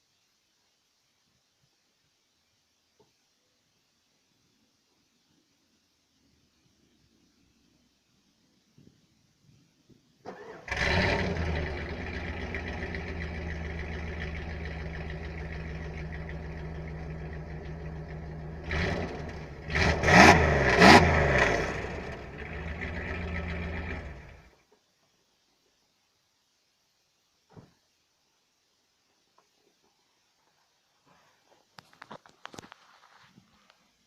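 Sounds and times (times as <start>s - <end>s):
engine cranking: 10.3s - 24.5s
engine revving: 10.3s - 24.5s
engine idling: 10.3s - 24.6s.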